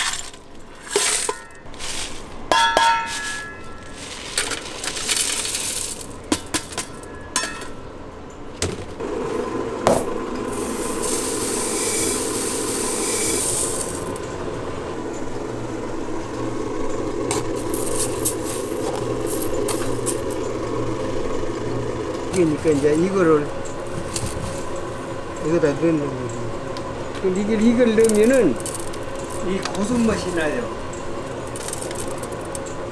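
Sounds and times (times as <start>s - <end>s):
metallic clinking and clattering: 0.0s - 7.9s, 9.9s - 14.4s, 16.0s - 32.9s
machine humming and hissing: 0.0s - 32.9s.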